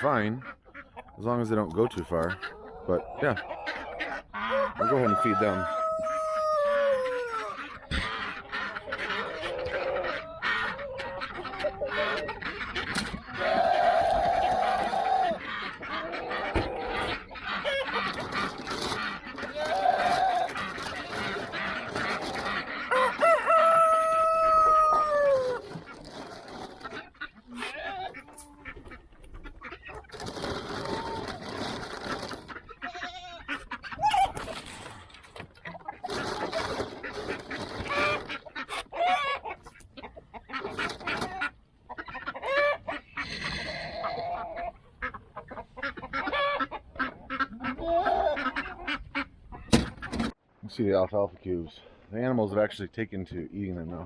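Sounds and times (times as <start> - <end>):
chickens clucking: 0.0 - 52.6
rooster crowing: 4.5 - 7.6, 22.9 - 25.6.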